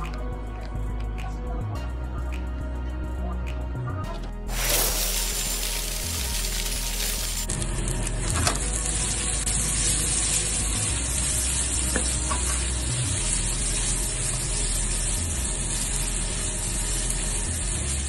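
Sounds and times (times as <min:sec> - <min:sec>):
noodles sizzling in a pan: 0:04.5 - 0:18.0.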